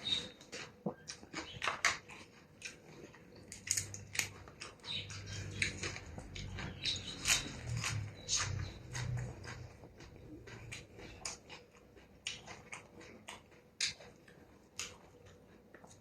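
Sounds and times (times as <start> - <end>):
chewing and slurping soup: 0.0 - 16.0.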